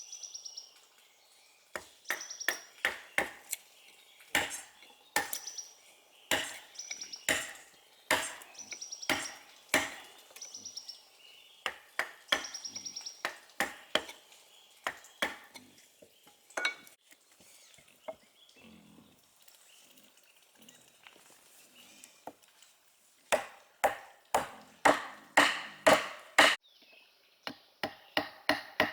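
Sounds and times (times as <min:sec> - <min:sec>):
metal tool striking wood: 0:01.8 - 0:03.6, 0:04.4 - 0:05.6, 0:06.3 - 0:06.7, 0:07.3 - 0:08.5, 0:09.1 - 0:10.1, 0:11.7 - 0:14.2, 0:14.8 - 0:15.6, 0:23.4 - 0:26.6, 0:27.5 - 0:28.9.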